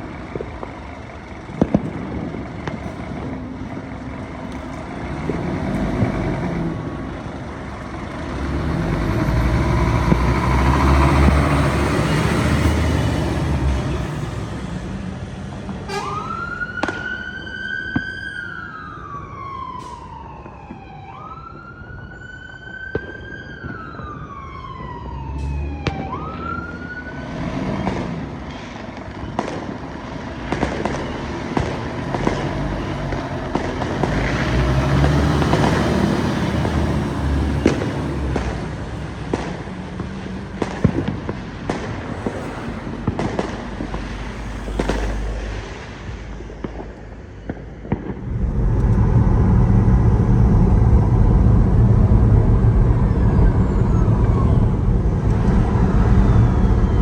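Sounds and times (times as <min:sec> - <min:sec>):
fireworks crackling and banging: 0:00.0 - 0:09.0, 0:16.8 - 0:17.2, 0:27.7 - 0:57.0
road traffic rumble: 0:00.0 - 0:57.0
emergency vehicle siren wailing: 0:15.8 - 0:45.5, 0:47.5 - 0:57.0.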